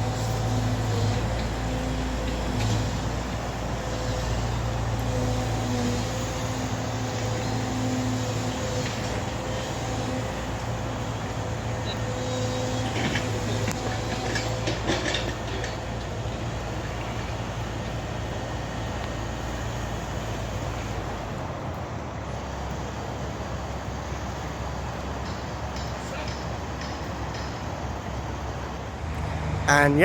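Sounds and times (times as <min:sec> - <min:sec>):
large engine droning: 0:00.0 - 0:30.0
metallic rattling and clanking: 0:12.3 - 0:16.1.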